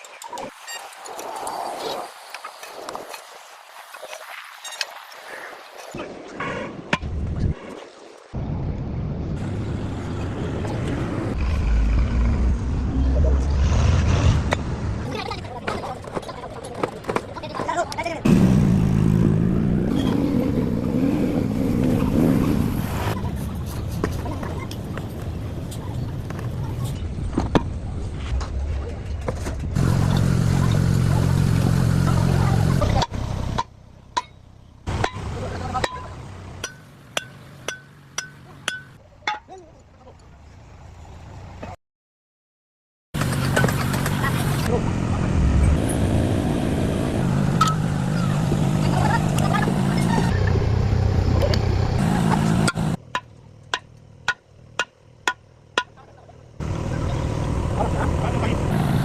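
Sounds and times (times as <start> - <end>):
engine rumbling: 8.4 - 39.0, 43.2 - 59.0
loud rumbling machine noise: 18.3 - 23.5, 29.6 - 33.5, 43.2 - 53.0, 56.6 - 59.0.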